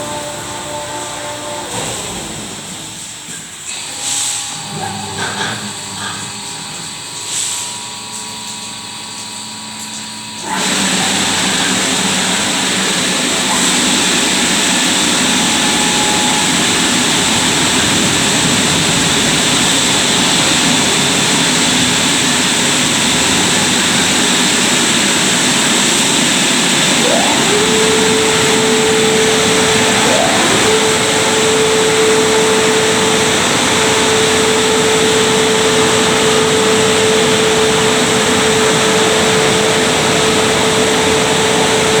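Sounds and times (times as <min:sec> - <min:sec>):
steady hum: 0:00.0 - 0:03.2, 0:12.3 - 0:42.0
car wash rushing noise: 0:00.0 - 0:08.2, 0:09.9 - 0:42.0
short rising whines: 0:12.9 - 0:42.0.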